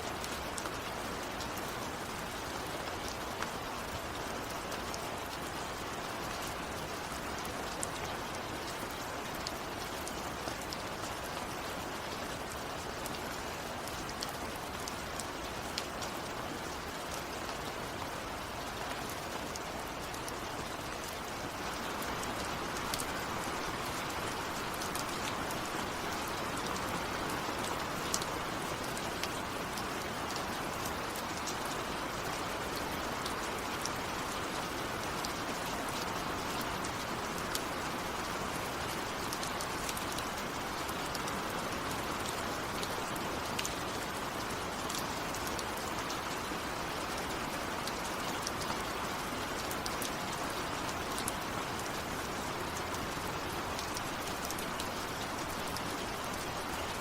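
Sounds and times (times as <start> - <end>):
rain falling: 0.0 - 57.0
raindrops ticking: 18.8 - 41.6, 49.6 - 57.0.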